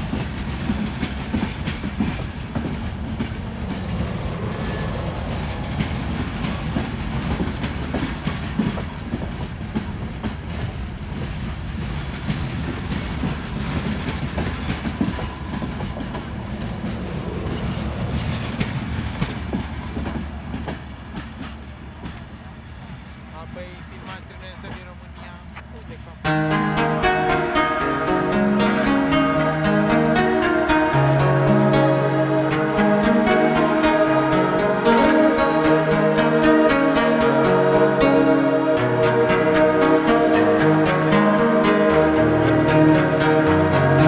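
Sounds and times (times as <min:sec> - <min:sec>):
train rumbling past: 0:00.0 - 0:44.0
wheels clicking over rail joints: 0:18.1 - 0:23.0.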